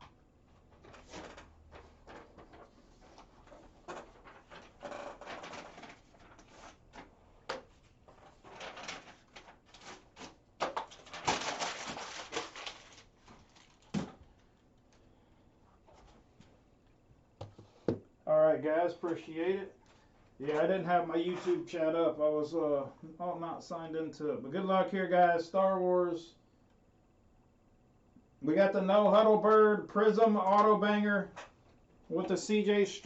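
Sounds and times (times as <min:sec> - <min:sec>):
crinkly packaging rustle: 0:00.5 - 0:15.1.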